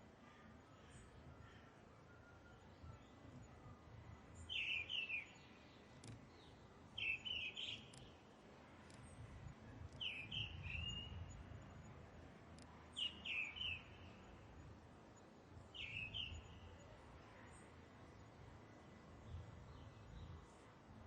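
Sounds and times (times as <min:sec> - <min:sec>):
bird chirping: 0:04.4 - 0:08.1, 0:10.0 - 0:11.4, 0:12.9 - 0:14.4, 0:15.7 - 0:16.9.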